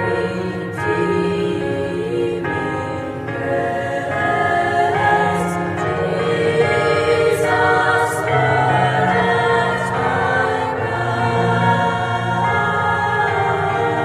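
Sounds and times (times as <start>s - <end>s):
choir singing sustained notes: 0.0s - 14.0s.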